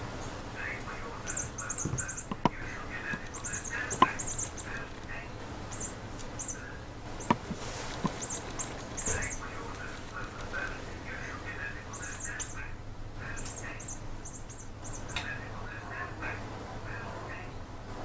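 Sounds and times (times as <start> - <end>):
bird chattering: 1.0 - 15.6
small bird chirping: 1.2 - 10.8, 11.8 - 15.5.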